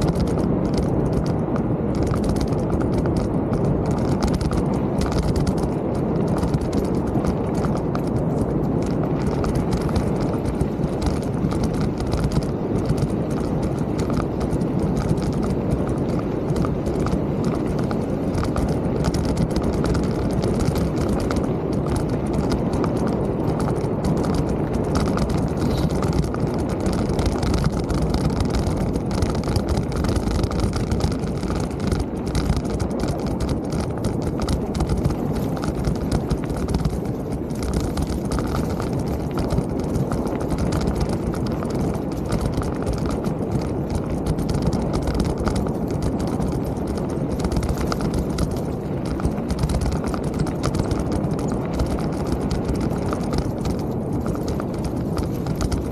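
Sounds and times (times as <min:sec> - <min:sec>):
bike rattles and clicks: 0:00.0 - 0:55.9
bike tyres rumbling on trail: 0:00.0 - 0:55.9.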